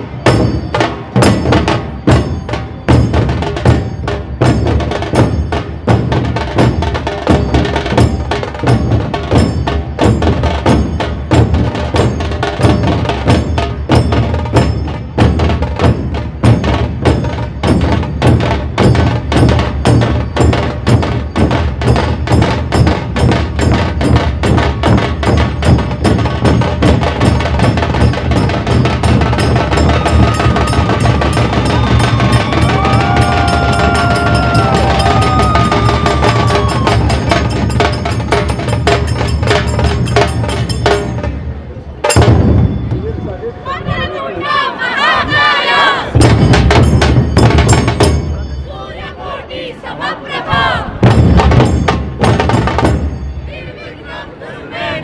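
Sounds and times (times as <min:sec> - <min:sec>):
sharp cracking drum beats: 0:00.0 - 0:41.4, 0:42.0 - 0:43.1, 0:46.2 - 0:48.3, 0:51.0 - 0:53.4.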